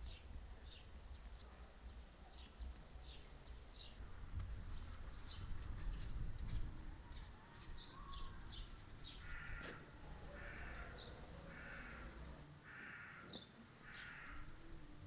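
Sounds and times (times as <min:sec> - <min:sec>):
harsh bird calls: 0:09.2 - 0:12.4
high falling bird chirps: 0:10.1 - 0:12.4.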